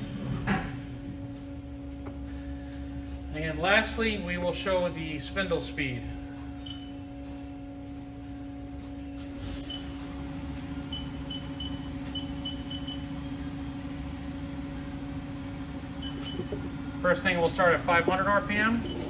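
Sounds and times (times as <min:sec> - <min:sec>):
machine electrical hum: 0:00.0 - 0:19.0.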